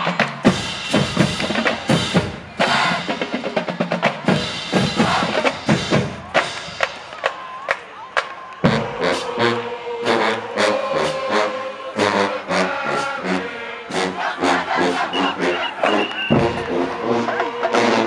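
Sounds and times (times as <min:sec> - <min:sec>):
snare drums: 0:00.0 - 0:09.3, 0:14.9 - 0:18.0.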